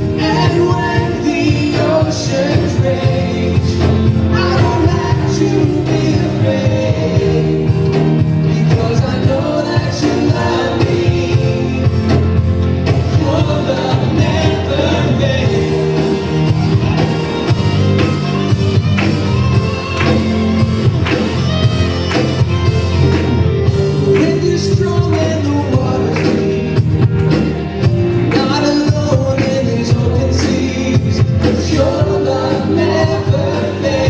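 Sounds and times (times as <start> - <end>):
drums beating: 0.0 - 34.0
live band playing: 0.0 - 34.0
person singing: 23.8 - 27.2.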